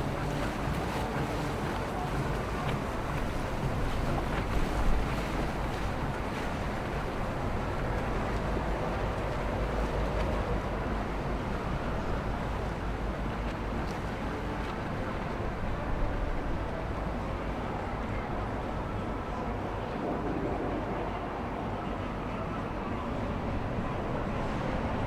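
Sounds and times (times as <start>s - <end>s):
boat motors running: 0.0s - 9.9s
wind buffeting microphone: 0.0s - 13.4s, 15.4s - 25.0s
waves and water: 0.0s - 25.0s.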